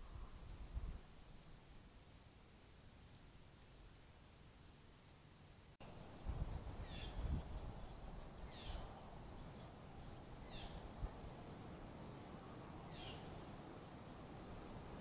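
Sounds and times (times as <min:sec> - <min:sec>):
bird calling: 0:12.0 - 0:13.5.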